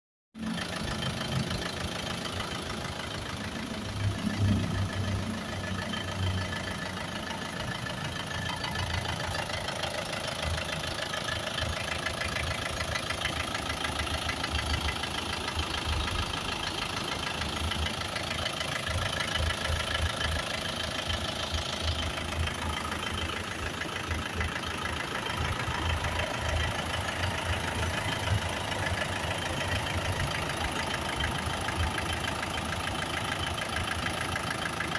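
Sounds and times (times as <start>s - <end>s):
car engine idling with clatter: 0.3s - 34.9s.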